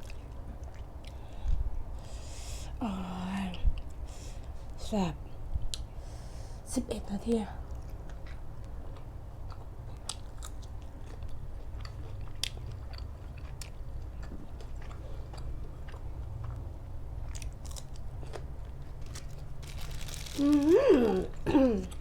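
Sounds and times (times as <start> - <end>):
person chewing food: 0.0 - 2.2, 7.6 - 22.0
food crunching: 7.6 - 22.0.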